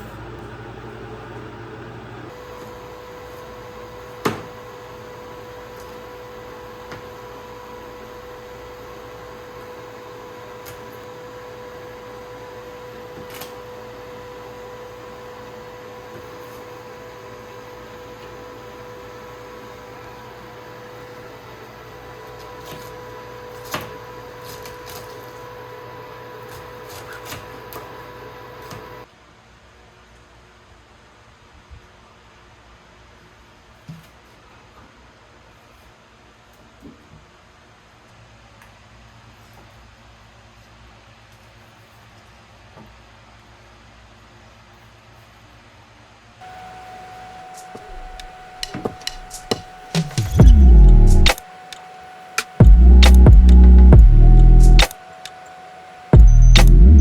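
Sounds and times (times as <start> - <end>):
appliance humming: 0.0 - 29.1, 46.4 - 57.0
sharp click: 48.2 - 51.8, 52.4 - 53.9, 54.7 - 55.0, 56.3 - 57.0.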